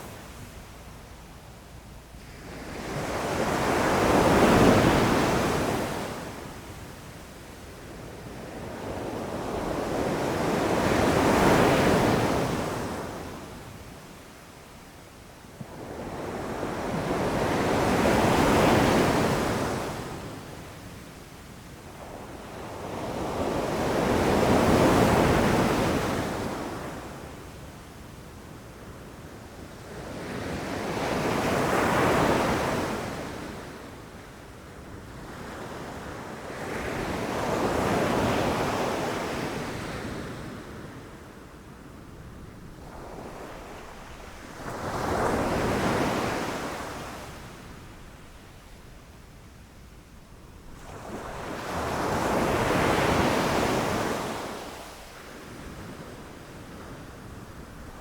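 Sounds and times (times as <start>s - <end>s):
ocean waves crashing on shore: 42.7s - 48.3s, 50.7s - 58.0s.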